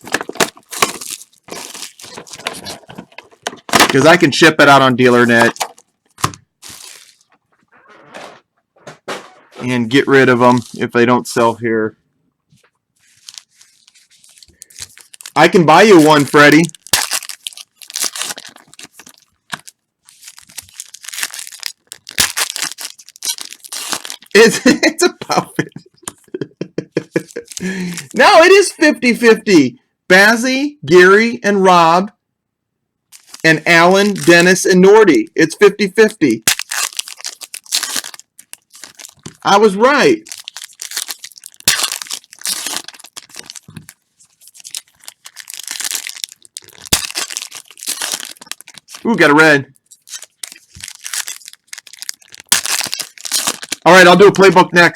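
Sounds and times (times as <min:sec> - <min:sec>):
foil wrapper tearing and crinkling: 0:00.0 - 0:04.2, 0:05.1 - 0:07.3, 0:13.0 - 0:24.8, 0:27.1 - 0:28.2, 0:33.1 - 0:34.5, 0:36.4 - 0:49.1, 0:49.8 - 0:54.5
cards being handled: 0:05.2 - 0:07.4.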